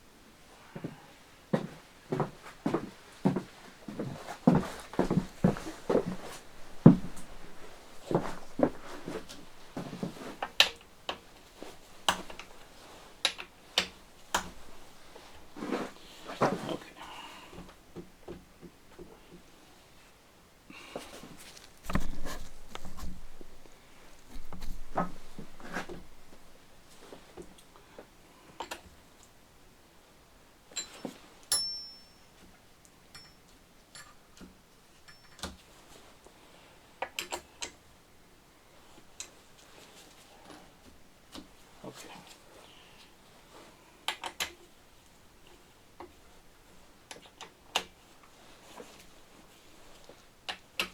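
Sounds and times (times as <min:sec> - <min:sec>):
metallic clicks and clinks of tools: 0:33.1 - 0:34.2, 0:35.0 - 0:35.6.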